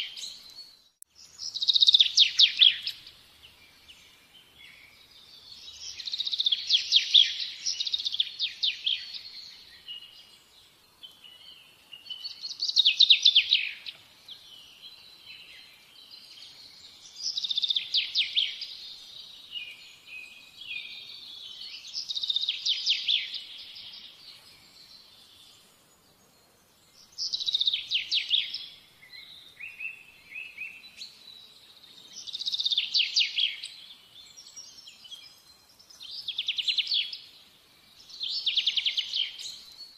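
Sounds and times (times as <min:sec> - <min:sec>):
songbird trilling and chirping: 0:00.0 - 0:25.7, 0:26.3 - 0:39.9.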